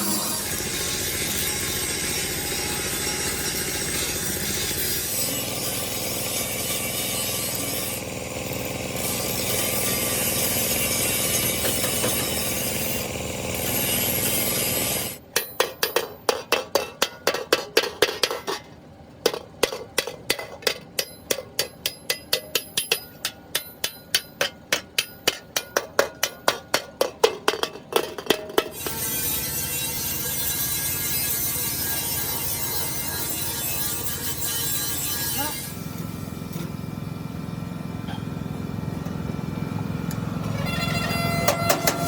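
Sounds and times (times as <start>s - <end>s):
grinding on metal: 0.0s - 15.2s, 27.5s - 35.8s
hammer blows ringing: 19.7s - 27.8s.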